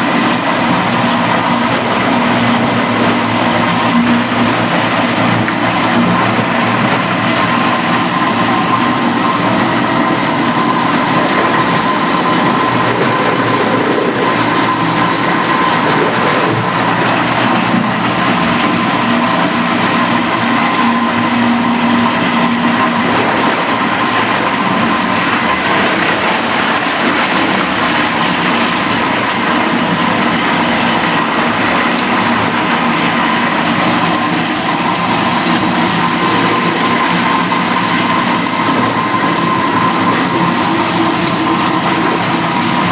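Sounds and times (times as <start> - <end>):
constant high hum: 0.0 - 42.9
industrial machinery running: 0.0 - 42.9.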